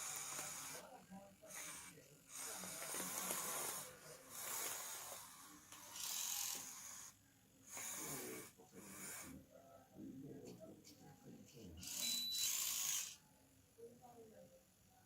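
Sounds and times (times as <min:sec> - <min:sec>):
small electric motors whirring: 0:00.0 - 0:09.3, 0:11.8 - 0:13.2.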